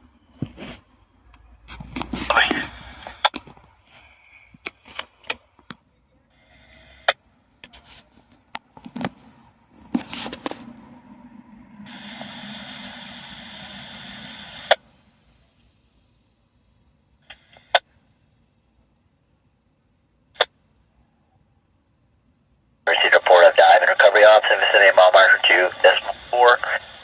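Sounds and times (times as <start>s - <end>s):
open radio channel hissing: 2.2s - 3.4s, 11.8s - 15.6s, 22.9s - 27.0s
radio clicks: 22.9s - 26.8s
radio static burst: 22.9s - 27.0s.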